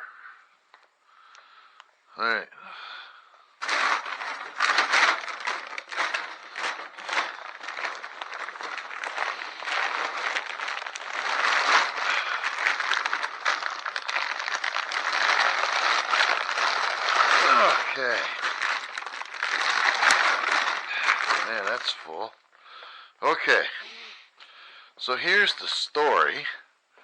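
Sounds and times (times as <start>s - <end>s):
bags crinkling and crackling: 3.6s - 22.4s.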